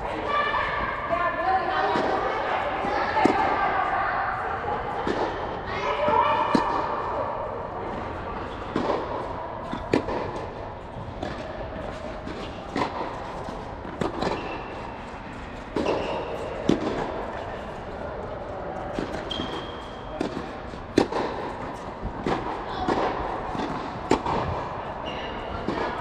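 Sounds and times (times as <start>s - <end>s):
tennis ball hitting racket strings: 8.6s - 17.3s, 18.9s - 24.6s.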